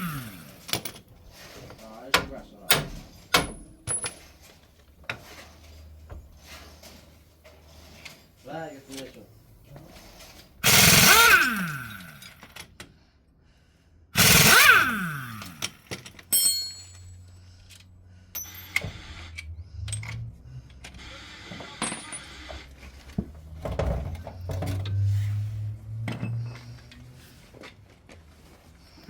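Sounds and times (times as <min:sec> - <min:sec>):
power tool burst: 0:10.6 - 0:12.3, 0:14.2 - 0:15.7
metallic clinks and rattles: 0:15.5 - 0:18.8.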